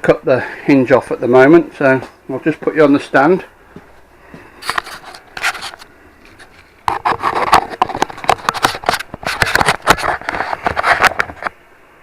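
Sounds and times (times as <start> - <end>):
camera handling scraping and knocks: 4.6 - 11.6.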